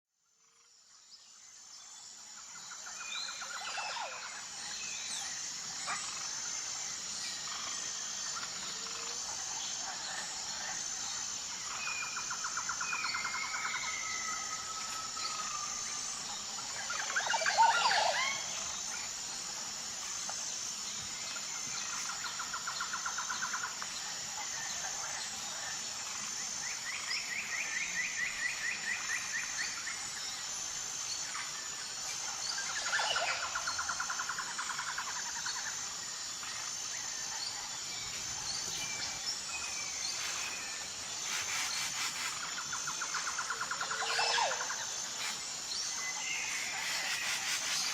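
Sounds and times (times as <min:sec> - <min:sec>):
high-pitched insect drone: 0:00.2 - 0:47.9
birds calling and trilling: 0:02.6 - 0:47.9.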